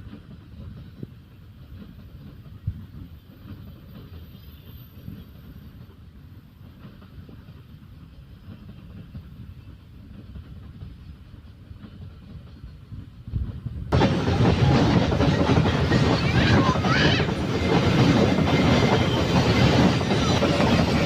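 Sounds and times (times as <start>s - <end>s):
train rumbling on rails: 0.0s - 21.0s.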